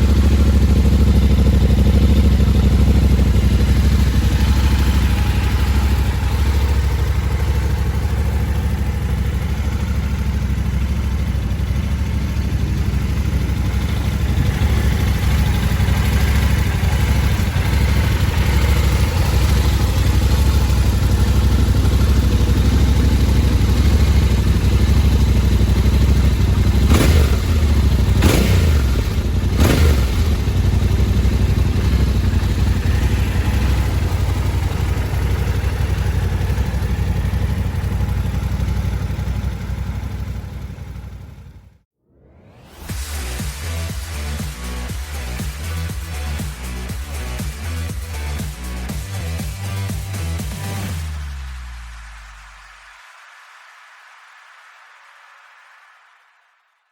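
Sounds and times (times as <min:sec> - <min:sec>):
motorcycle engine idling: 0:00.0 - 0:41.8, 0:43.7 - 0:51.2
engine revs blipped: 0:13.5 - 0:36.4, 0:42.1 - 0:52.6.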